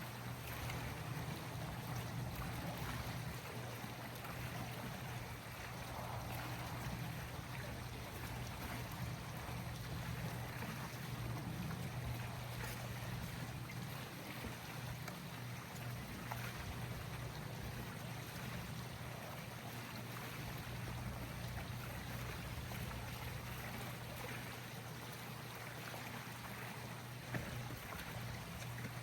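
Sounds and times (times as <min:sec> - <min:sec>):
trickling water: 0:00.0 - 0:29.0
low motor hum: 0:00.1 - 0:24.6.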